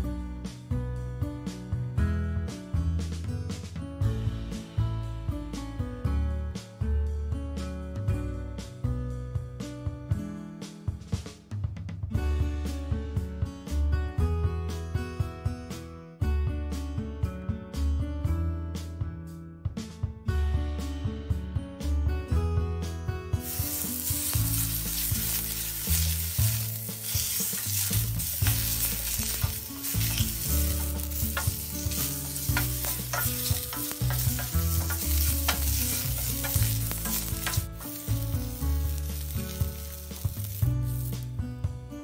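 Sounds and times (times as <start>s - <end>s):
wooden spoon scraping a pan: 23.4s - 41.2s
food sizzling in a frying pan: 23.4s - 41.4s.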